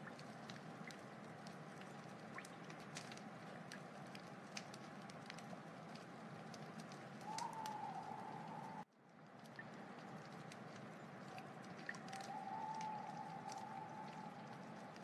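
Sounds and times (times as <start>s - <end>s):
wood fire crackling: 0.0s - 15.0s
thin whistling tone: 7.2s - 8.8s, 12.1s - 14.6s.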